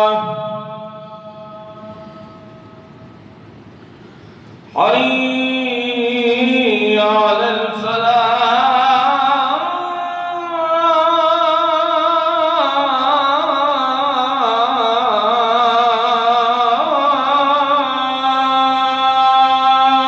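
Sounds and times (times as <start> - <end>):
man chanting call to prayer: 0.0 - 2.9, 4.7 - 20.0.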